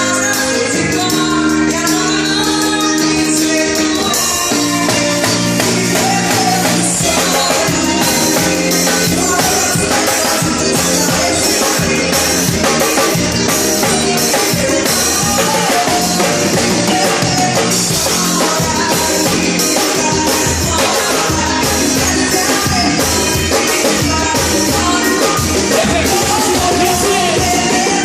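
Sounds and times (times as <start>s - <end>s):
band music: 0.0s - 28.0s
drum kit beat: 0.0s - 28.0s
person singing: 0.0s - 28.0s.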